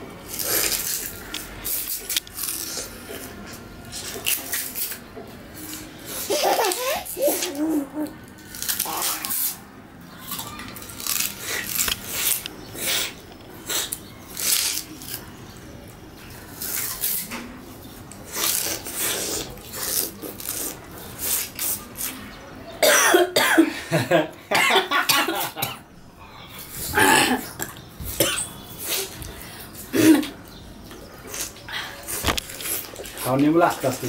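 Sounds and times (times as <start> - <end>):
chewing raw sugarcane: 0.3 - 5.0, 10.2 - 15.2.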